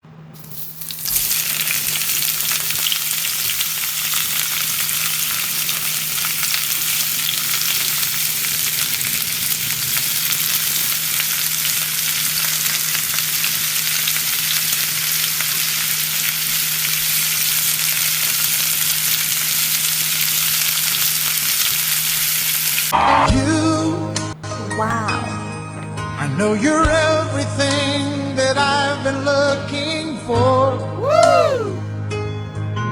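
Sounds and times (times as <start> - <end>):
sausages sizzling in a pan: 0.4 - 23.2.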